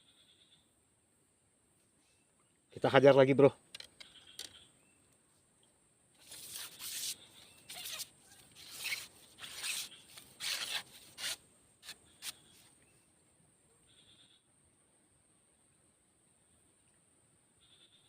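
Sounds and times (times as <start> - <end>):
rustling scraping noises: 6.2 - 12.8.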